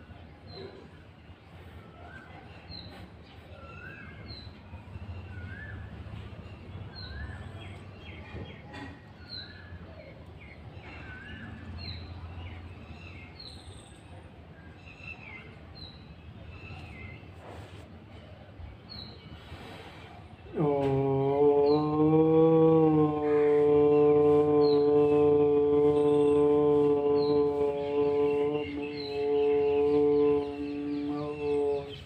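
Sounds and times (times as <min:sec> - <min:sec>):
birds chirping and whistling: 0:02.2 - 0:08.6, 0:10.4 - 0:14.0, 0:23.3 - 0:32.0.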